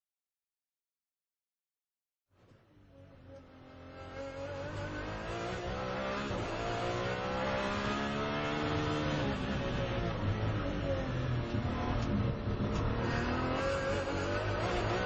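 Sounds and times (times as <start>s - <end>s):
race car engine accelerating: 3.2s - 15.0s.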